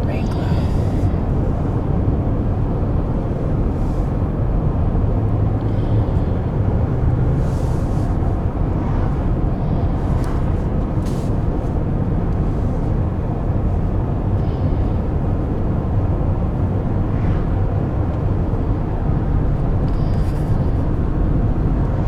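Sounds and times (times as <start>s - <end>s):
vehicle driving on highway: 0.0s - 22.0s.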